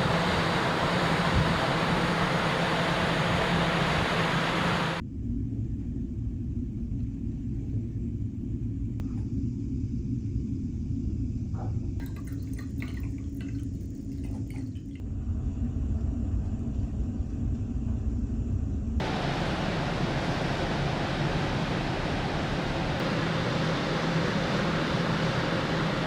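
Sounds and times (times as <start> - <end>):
ferry engines rumbling: 0.0 - 5.0, 18.9 - 26.0
rushing noise with hum: 0.0 - 12.0, 15.0 - 26.0.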